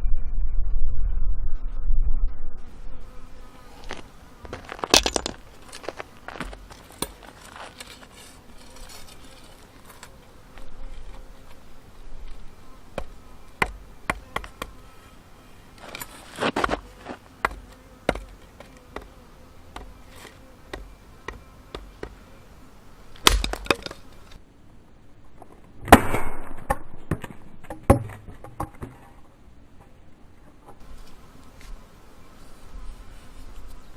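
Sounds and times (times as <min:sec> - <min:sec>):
chopping tool striking firewood: 0:13.0 - 0:14.7, 0:16.5 - 0:19.1, 0:23.2 - 0:24.0
wood cracking and splitting: 0:23.2 - 0:24.0.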